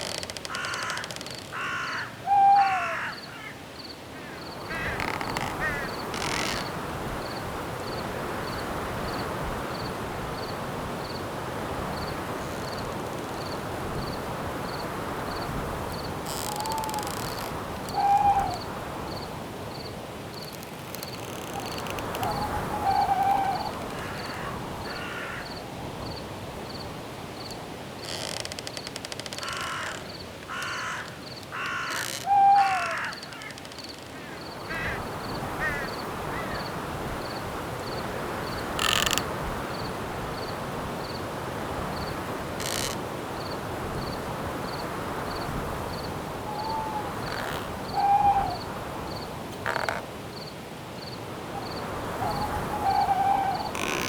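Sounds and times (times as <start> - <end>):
bird calling: 0.0 - 3.6, 4.2 - 6.8, 15.3 - 19.3, 20.9 - 25.6, 29.4 - 36.8, 38.4 - 39.2, 46.3 - 50.1, 51.5 - 54.0
cricket chirping: 0.0 - 41.3, 41.9 - 54.0
wind in branches: 0.0 - 54.0.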